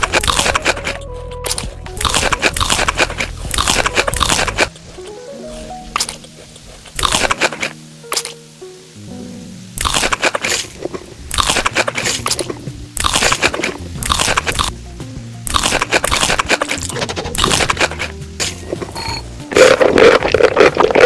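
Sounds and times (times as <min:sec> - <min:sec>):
background music with bass line: 0:00.0 - 0:06.0, 0:12.4 - 0:20.1
crunchy food being chewed: 0:00.0 - 0:08.4, 0:09.8 - 0:14.8, 0:15.5 - 0:18.9, 0:19.5 - 0:21.0.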